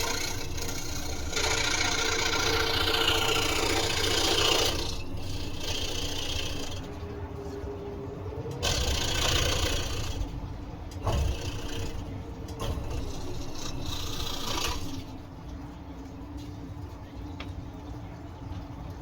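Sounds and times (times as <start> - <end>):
saw blade rasping through wood: 0.0 - 6.9, 8.6 - 10.2, 11.0 - 15.1
scroll saw motor hum: 0.0 - 7.6, 8.5 - 15.2.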